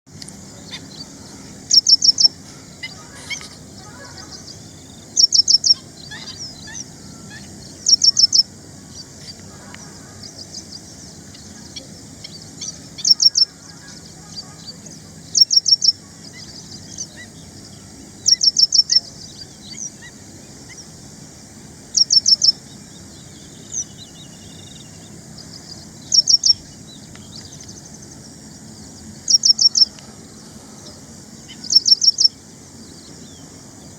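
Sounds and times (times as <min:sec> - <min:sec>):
faint bird chirps: 0:00.3 - 0:33.9
bird singing repeated high notes: 0:00.7 - 0:10.8.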